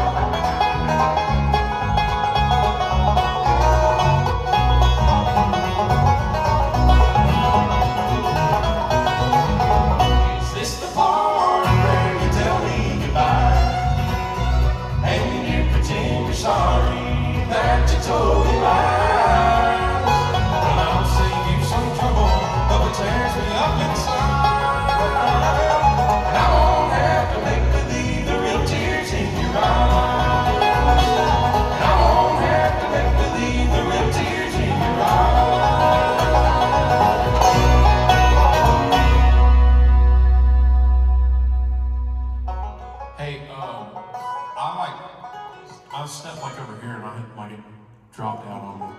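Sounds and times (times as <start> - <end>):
guitar: 0.0 - 46.6
banjo: 0.0 - 47.1
person singing: 10.4 - 14.3, 15.0 - 39.0.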